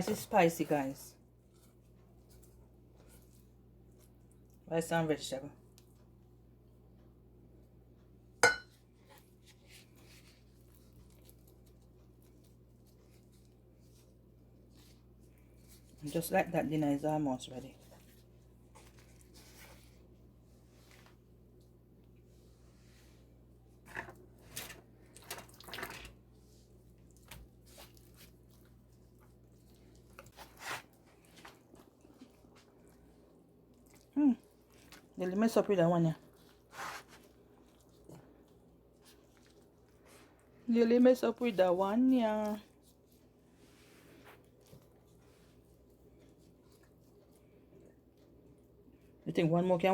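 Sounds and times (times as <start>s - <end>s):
rustling handling sounds: 0.0s - 4.6s, 8.7s - 49.2s
faint low hum: 0.0s - 49.9s
kitchenware clinking: 8.4s - 8.8s.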